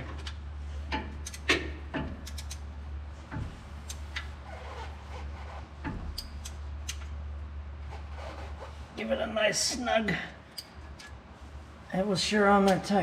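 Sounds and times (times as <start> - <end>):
tools clicking and knocking: 0.0 - 2.7, 5.8 - 7.2
steady low hum: 0.0 - 13.0.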